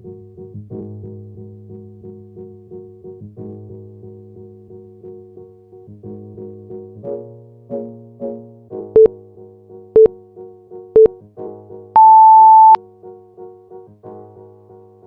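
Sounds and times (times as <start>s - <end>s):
background keyboard music: 0.0s - 15.0s
timer beeps: 12.0s - 12.8s.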